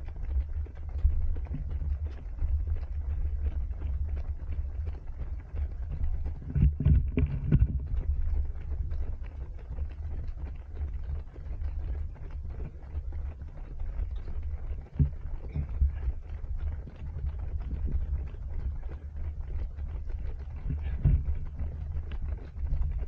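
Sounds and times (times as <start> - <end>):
wind rumble on microphone: 0.0 - 23.0.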